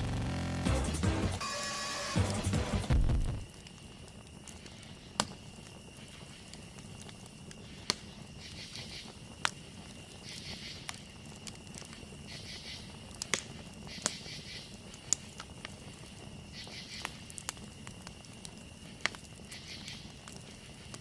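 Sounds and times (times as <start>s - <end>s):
campfire crackling and popping: 0.0s - 21.0s
faint steady high tone: 1.4s - 2.3s.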